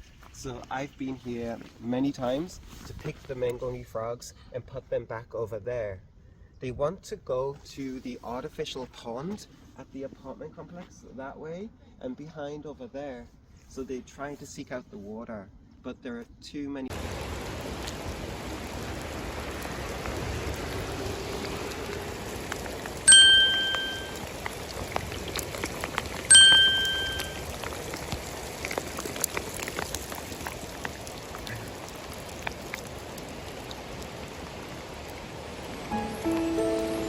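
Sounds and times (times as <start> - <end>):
steady rain: 16.9 - 37.0
loud bright ding: 23.1 - 24.2, 26.3 - 27.4.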